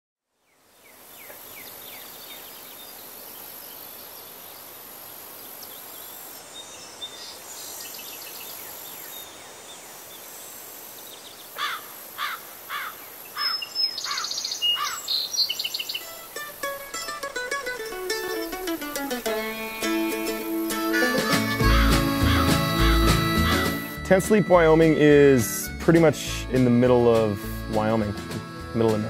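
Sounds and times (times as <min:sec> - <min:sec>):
insect hiss: 0:00.3 - 0:24.0
bird calling short notes: 0:20.7 - 0:24.5.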